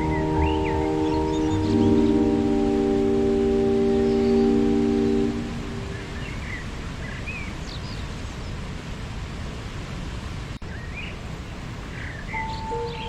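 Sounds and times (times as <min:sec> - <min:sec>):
held musical tone: 0:00.0 - 0:06.2, 0:12.3 - 0:13.0
bird chirps: 0:00.0 - 0:08.0, 0:12.0 - 0:13.0
waterfall rushing: 0:00.0 - 0:13.0.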